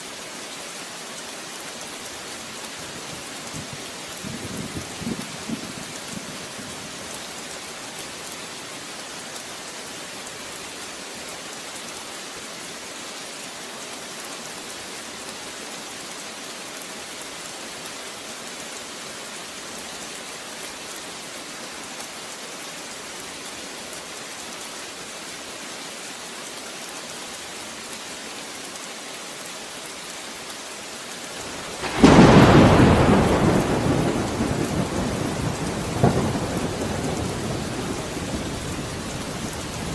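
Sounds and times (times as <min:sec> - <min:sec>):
steady rain falling: 0:00.0 - 0:39.9
thunder clap and rumble: 0:31.7 - 0:39.9.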